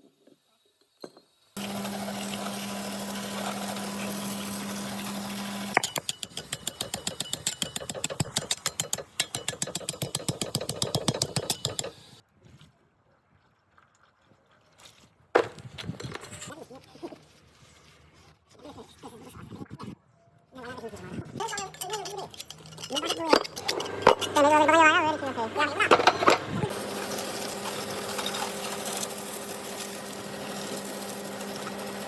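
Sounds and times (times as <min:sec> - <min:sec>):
power tool humming: 0:01.6 - 0:06.0, 0:23.6 - 0:32.0
rapid hammering rattle: 0:05.8 - 0:12.0.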